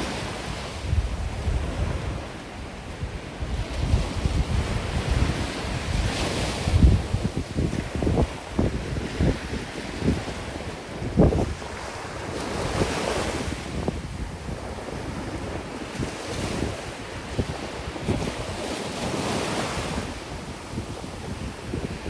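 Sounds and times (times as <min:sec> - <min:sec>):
sea waves breaking on beach: 0:00.0 - 0:22.0
wind buffeting microphone: 0:00.0 - 0:22.0.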